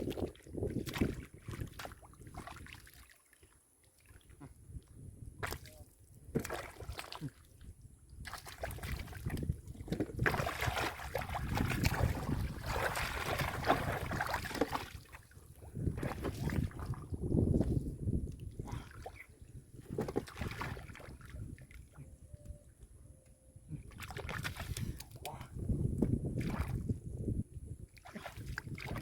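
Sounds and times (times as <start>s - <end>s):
hands splashing in muddy water: 6.4s - 7.4s, 8.2s - 15.2s, 19.8s - 21.4s, 26.4s - 26.8s, 28.0s - 29.0s.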